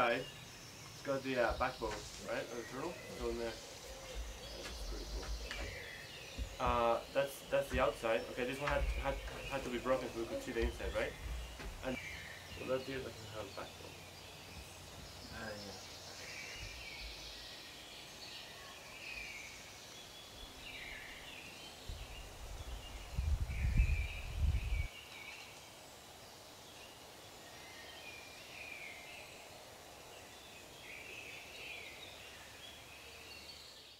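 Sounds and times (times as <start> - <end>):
birds chirping and singing: 0.0 - 25.8
outdoor hiss: 0.0 - 33.9.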